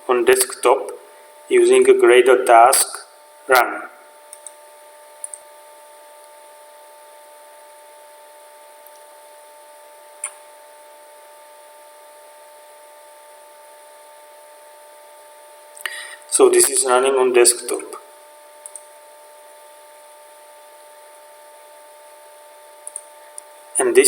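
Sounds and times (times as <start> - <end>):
electrical hum and hiss: 0.0 - 24.0
short clicks: 10.2 - 10.4, 22.8 - 23.5.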